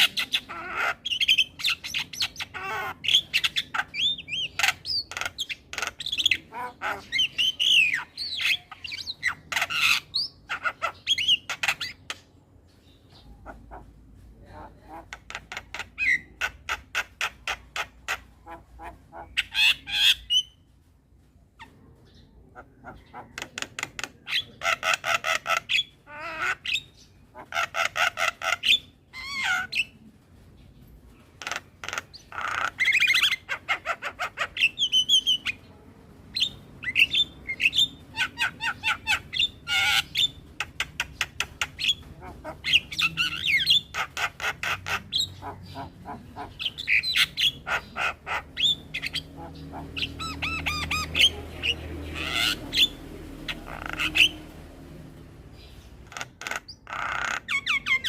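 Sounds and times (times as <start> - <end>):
myna singing harsh chattering calls: 0.0 - 12.2, 36.3 - 58.0.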